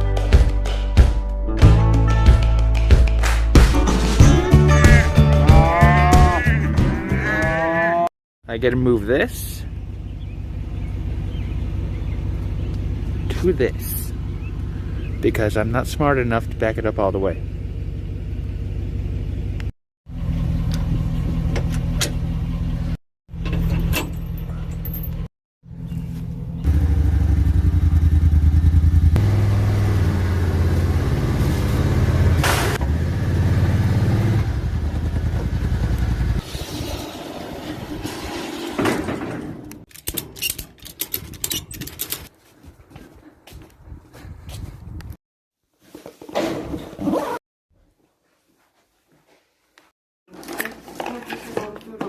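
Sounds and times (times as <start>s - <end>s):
vehicle engine running: 9.6s - 24.6s, 25.6s - 36.4s.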